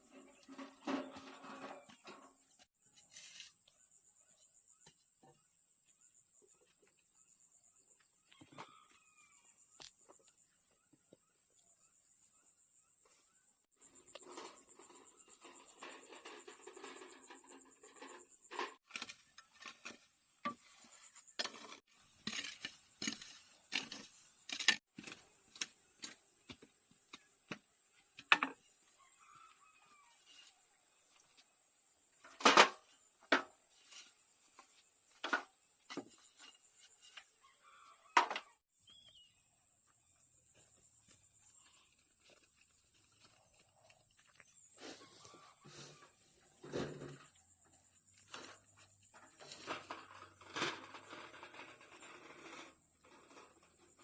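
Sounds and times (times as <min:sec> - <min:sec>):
faint bird chirps: 0:03.0 - 0:16.0, 0:28.8 - 0:31.2, 0:36.1 - 0:49.3.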